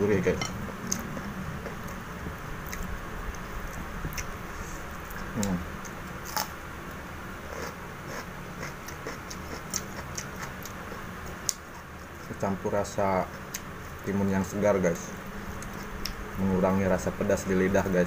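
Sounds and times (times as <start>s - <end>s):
steady low hum: 0.0s - 18.0s
chewing food: 7.5s - 12.4s.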